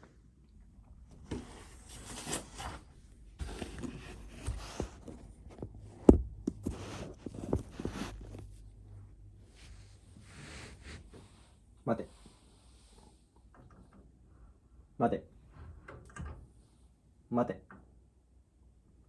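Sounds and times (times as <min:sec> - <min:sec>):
rustling and scuffling: 0:01.1 - 0:11.5.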